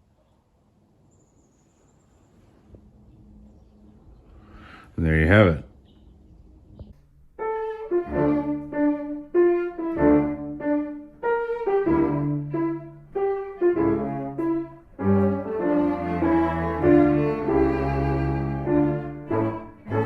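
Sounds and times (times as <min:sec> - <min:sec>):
piano: 0:06.1 - 0:20.0
bowed strings playing detached notes: 0:07.3 - 0:20.0.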